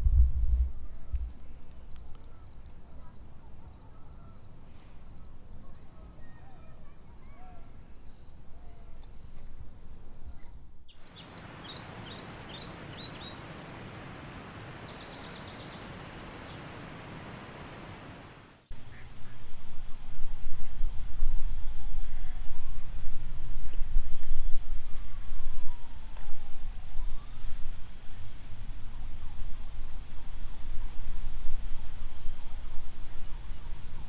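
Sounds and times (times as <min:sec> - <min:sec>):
wind rumble on microphone: 0:00.0 - 0:03.7, 0:18.8 - 0:34.0
small birds chirping: 0:00.0 - 0:23.0
faint bird calls: 0:00.0 - 0:34.0.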